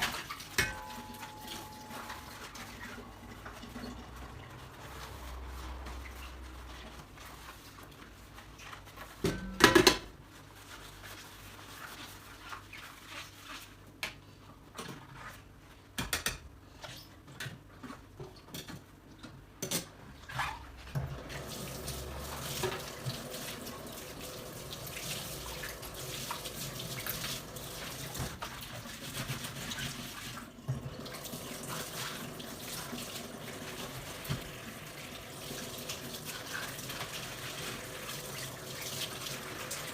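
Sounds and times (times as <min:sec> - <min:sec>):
tap water running: 0:00.0 - 0:06.4, 0:21.0 - 0:39.9
dishes clinking: 0:00.3 - 0:02.7.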